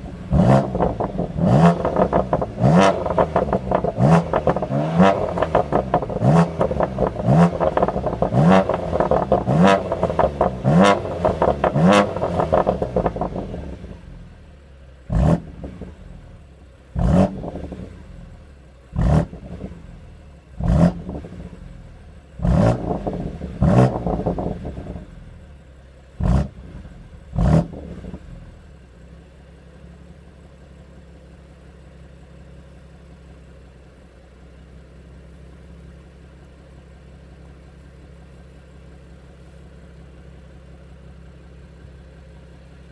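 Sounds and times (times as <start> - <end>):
car engine revving: 0.0 - 14.4, 15.0 - 25.4, 26.2 - 28.6
car engine idling: 0.0 - 42.9.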